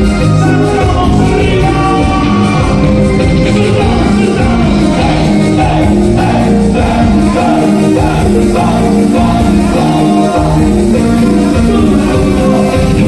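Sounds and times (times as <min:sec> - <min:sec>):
band music with singing: 0:00.0 - 0:13.0
repeating bass line: 0:00.0 - 0:13.0.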